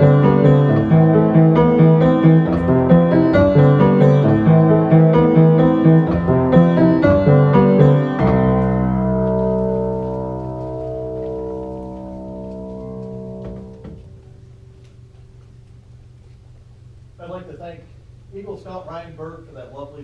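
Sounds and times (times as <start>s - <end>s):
piano chords: 0.0s - 15.4s.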